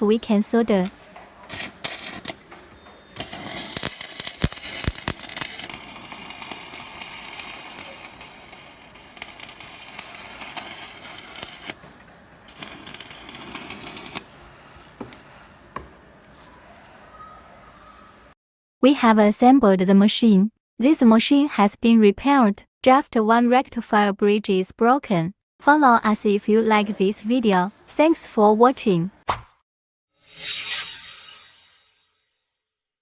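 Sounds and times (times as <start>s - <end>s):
welding arc crackling: 1.4s - 2.5s, 3.1s - 11.8s, 12.5s - 14.5s.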